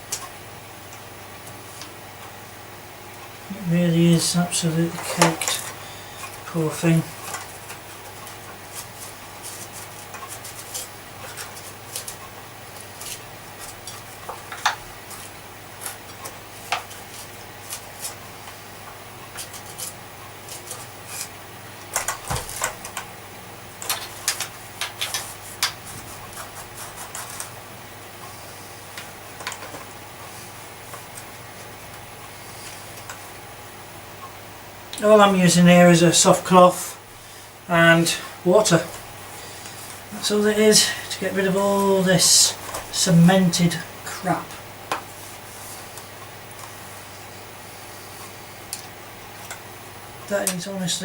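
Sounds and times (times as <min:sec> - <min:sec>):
steady low hum: 0:00.0 - 0:51.0
cloth rubbing strokes: 0:45.1 - 0:48.6.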